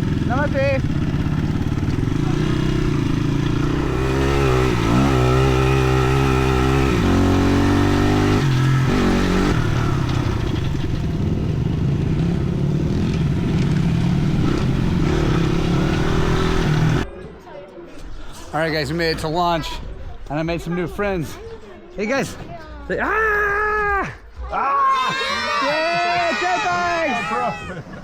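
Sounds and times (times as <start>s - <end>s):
dirt bike engine: 0.0s - 17.1s, 24.9s - 28.0s.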